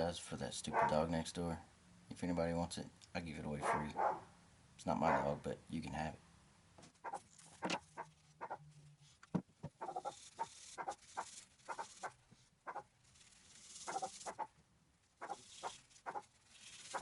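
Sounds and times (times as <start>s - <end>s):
dog barking: 0.7s - 1.0s, 3.6s - 4.2s, 5.0s - 5.4s.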